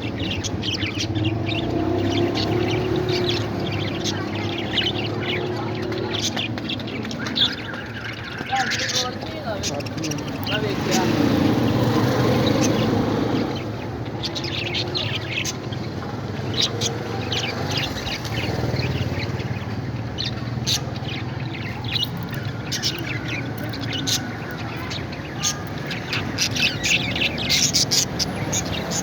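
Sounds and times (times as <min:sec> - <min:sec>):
parrots squawking: 0:07.3 - 0:13.6, 0:21.8 - 0:29.0.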